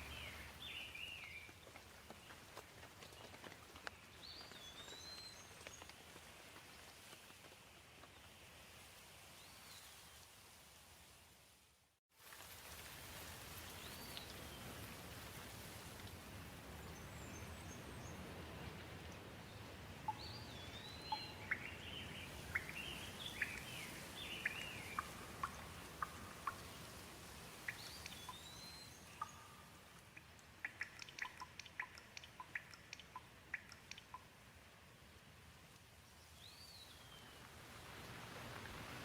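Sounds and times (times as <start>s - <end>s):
gentle rain hiss: 0.0s - 39.0s
sharp ticks: 30.0s - 34.3s.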